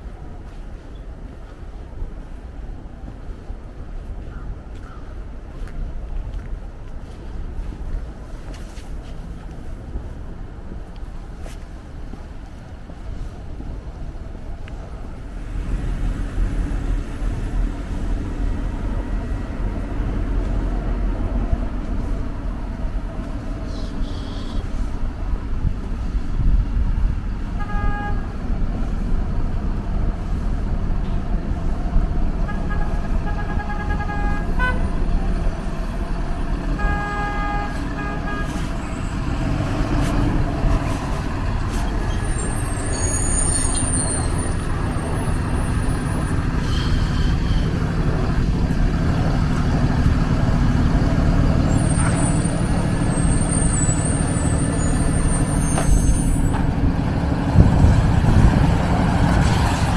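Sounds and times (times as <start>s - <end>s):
street traffic rumbling: 0.0s - 59.9s
vehicle horn honks: 23.7s - 24.8s, 27.6s - 28.4s, 32.4s - 39.7s
brief high squeak: 41.8s - 47.7s, 51.7s - 56.7s.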